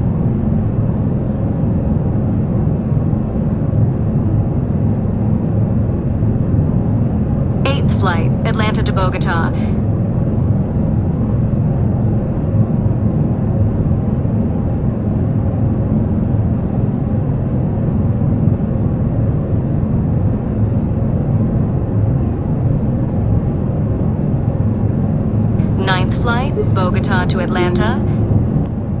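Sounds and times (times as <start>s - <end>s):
airliner cabin noise: 7.7s - 9.7s, 25.6s - 28.7s.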